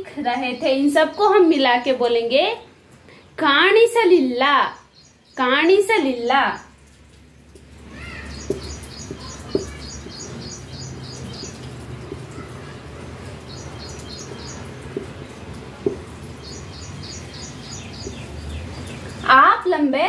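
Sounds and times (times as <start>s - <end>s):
small bird chirping: 7.4s - 19.4s.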